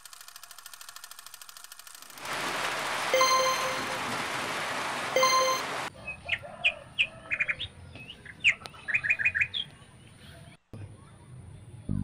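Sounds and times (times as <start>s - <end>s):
ringing tone: 3.2s - 4.0s, 5.2s - 5.7s
small birds chirping: 7.0s - 10.6s.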